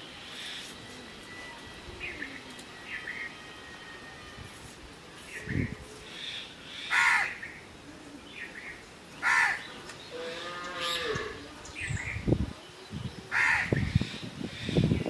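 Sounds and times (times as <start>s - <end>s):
crow cawing: 6.3s - 7.4s, 9.2s - 9.7s, 13.3s - 13.8s
cow mooing: 10.1s - 11.5s.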